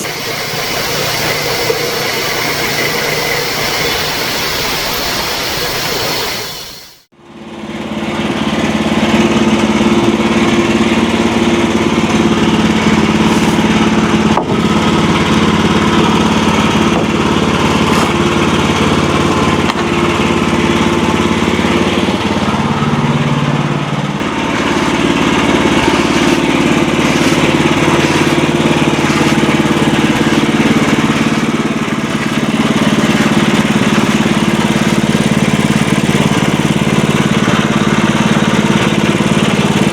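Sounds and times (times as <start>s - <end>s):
sawmill engine running: 0.0s - 39.9s
saw blade cutting wood: 13.1s - 14.6s, 15.2s - 20.0s, 24.2s - 36.0s.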